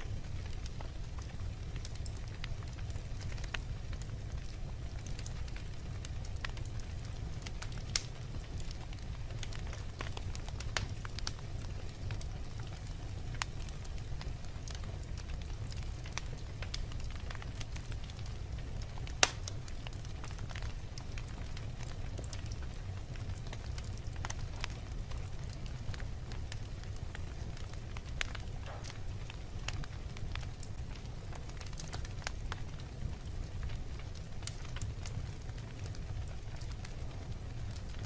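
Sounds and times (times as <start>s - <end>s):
fire crackling in fireplace: 0.0s - 38.0s
sharp loud pop from fire: 19.2s - 19.5s, 28.6s - 29.0s.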